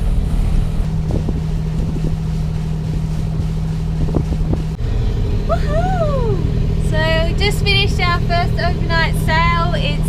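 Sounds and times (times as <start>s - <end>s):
boat engine droning: 0.0s - 10.0s
person whooping: 5.5s - 6.5s.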